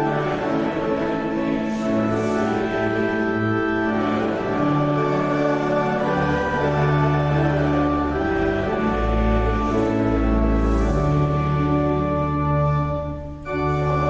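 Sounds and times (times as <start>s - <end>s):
church organ sustained chords: 0.0s - 14.0s.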